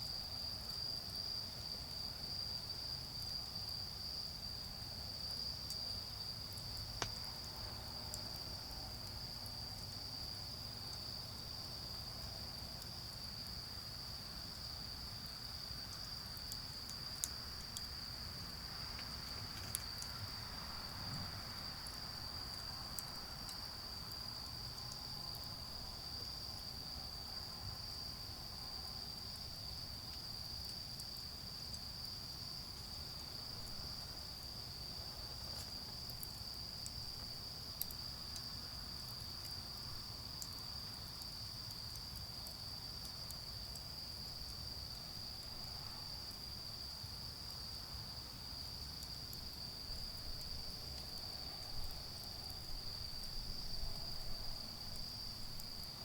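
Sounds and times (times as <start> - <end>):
crickets chirping: 0.0 - 56.0
charcoal fire popping: 6.6 - 8.4, 16.5 - 22.4.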